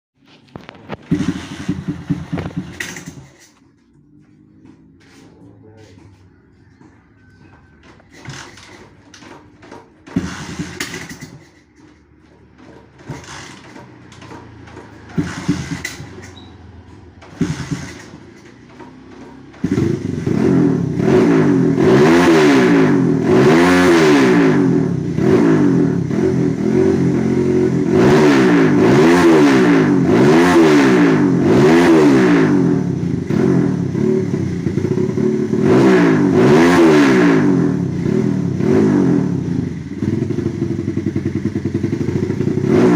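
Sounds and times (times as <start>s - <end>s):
clunks: 0.2s - 20.4s
motorcycle engine revving: 0.2s - 42.9s.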